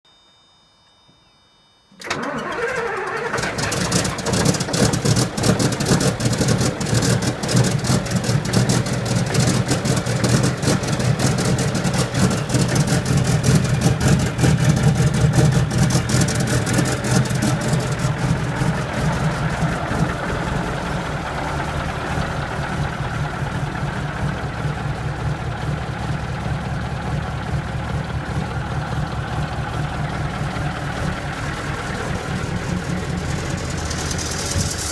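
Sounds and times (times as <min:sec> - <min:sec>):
diesel engine running rumble: 0:02.0 - 0:34.9
diesel truck engine starting: 0:02.0 - 0:34.9.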